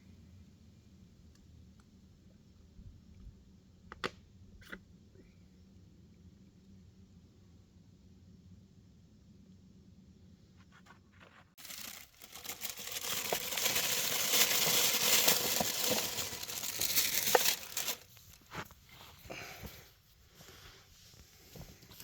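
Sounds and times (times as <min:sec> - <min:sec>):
aluminium foil crinkling: 0:11.6 - 0:18.7.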